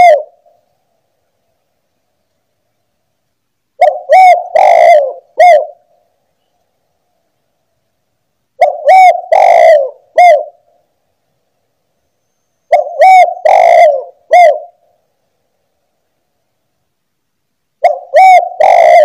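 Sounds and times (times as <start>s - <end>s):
dove cooing: 0.0s - 0.6s, 3.8s - 6.0s, 8.6s - 10.8s, 12.7s - 15.0s, 17.8s - 19.0s.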